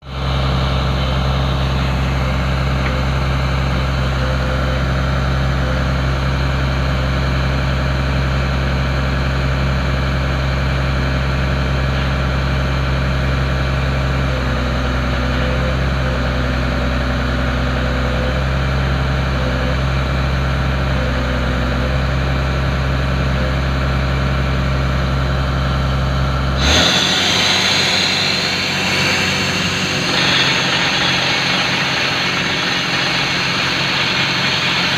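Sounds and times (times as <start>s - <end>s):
compressor engine droning: 0.0s - 34.9s
loud air hiss: 26.6s - 34.9s.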